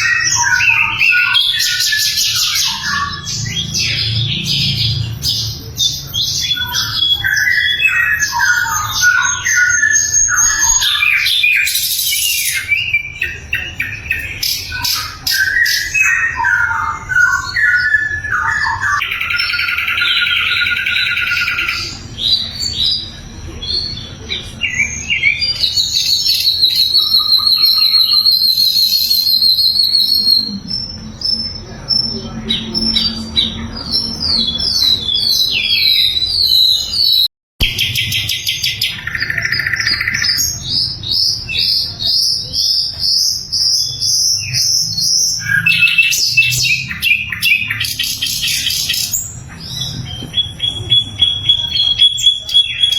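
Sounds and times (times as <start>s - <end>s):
bird singing whistled phrases and trills: 0.0s - 52.9s.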